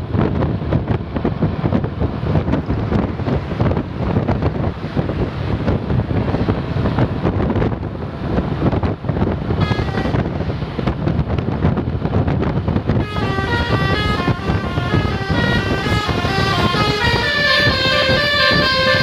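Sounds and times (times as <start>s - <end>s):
bus passing: 0.0s - 19.0s
wind buffeting microphone: 0.0s - 19.0s
multi-note bus horn: 9.6s - 10.4s, 13.0s - 19.0s.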